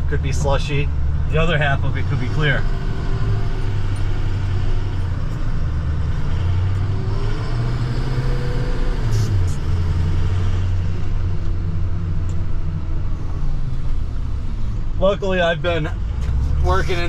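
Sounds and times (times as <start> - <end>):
truck engine and road noise: 0.0 - 17.0.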